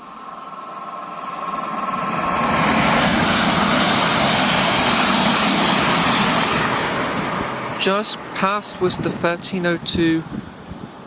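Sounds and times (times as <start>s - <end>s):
train wheels rushing on rails: 0.0s - 9.7s.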